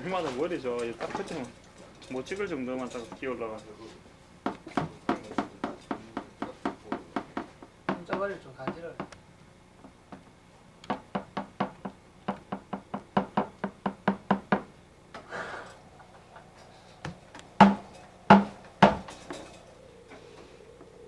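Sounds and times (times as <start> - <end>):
loud thumps: 17.0 - 19.5
sharp knocks: 17.0 - 19.6.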